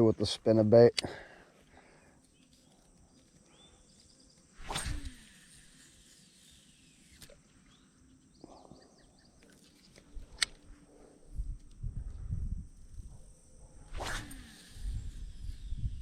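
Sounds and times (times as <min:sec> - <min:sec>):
fishing reel whirring: 0:02.2 - 0:08.2, 0:12.7 - 0:16.0
fishing rod swish: 0:04.6 - 0:05.4, 0:13.8 - 0:15.1.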